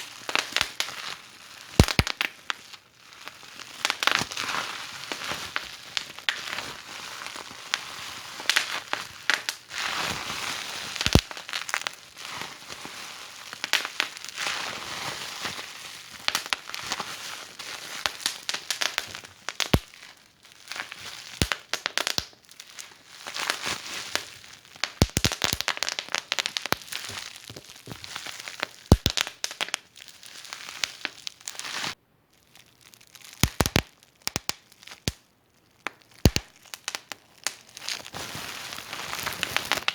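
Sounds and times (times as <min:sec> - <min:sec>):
wood fire crackling: 0:01.8 - 0:02.2, 0:11.0 - 0:11.8, 0:24.2 - 0:29.8, 0:33.4 - 0:35.2, 0:35.8 - 0:38.0
fire popping: 0:01.8 - 0:02.4, 0:11.0 - 0:11.4, 0:18.0 - 0:20.0, 0:21.3 - 0:22.4, 0:24.2 - 0:29.9, 0:33.3 - 0:35.2, 0:35.8 - 0:37.7.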